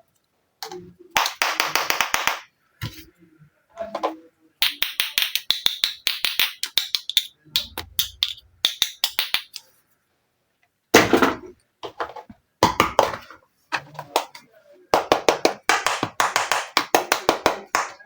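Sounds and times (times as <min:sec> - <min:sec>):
plastic toy pieces clicking: 0:04.6 - 0:09.6.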